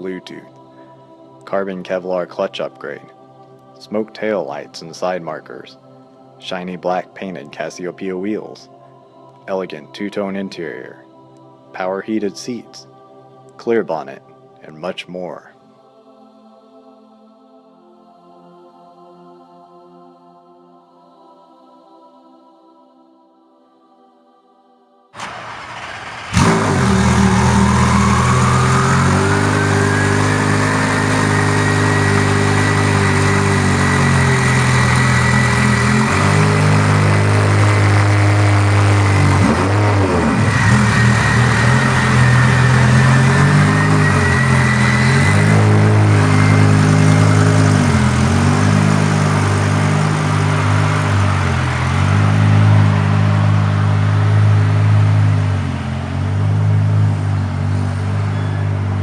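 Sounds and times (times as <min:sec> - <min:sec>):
car engine starting and idling: 0:25.2 - 0:59.0
high engine whine: 0:25.2 - 0:59.0.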